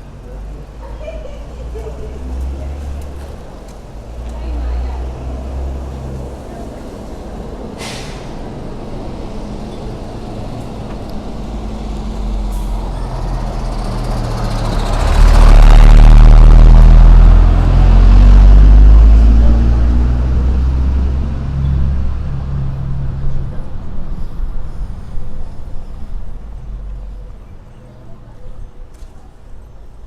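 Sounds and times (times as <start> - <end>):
heavy vehicle engine passing: 0.0 - 28.2.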